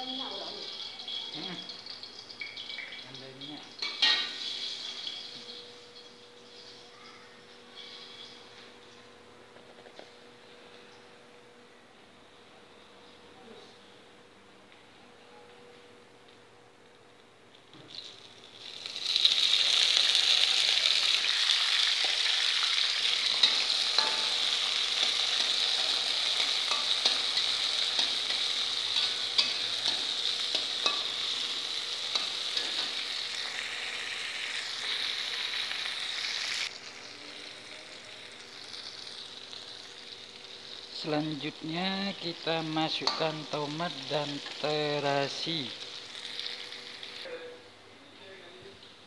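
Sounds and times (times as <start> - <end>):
food sizzling in hot oil: 0.0 - 7.0, 17.8 - 47.3.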